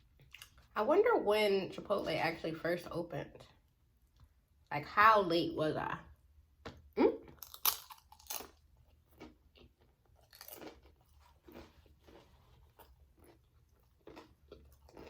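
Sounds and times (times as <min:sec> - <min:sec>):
person chewing food: 0:00.0 - 0:00.7, 0:06.6 - 0:15.0
food crunching: 0:00.1 - 0:00.7, 0:06.6 - 0:15.0.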